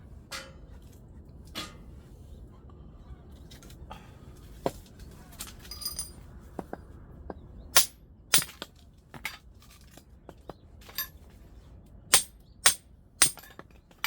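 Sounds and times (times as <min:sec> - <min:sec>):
ringing metallic clink: 0:05.7 - 0:06.2, 0:07.8 - 0:08.6, 0:12.2 - 0:13.6.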